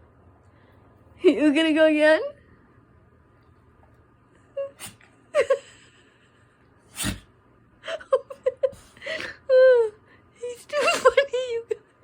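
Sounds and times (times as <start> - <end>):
dog nasal sounds: 4.7 - 5.0, 6.9 - 7.3
dog sneezing: 4.7 - 5.1, 6.9 - 7.4.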